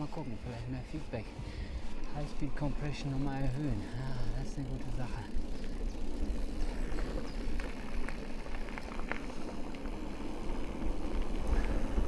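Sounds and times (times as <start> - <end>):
wind and tyres rumbling: 0.0 - 12.0
bike clicks and rattles: 1.4 - 12.0.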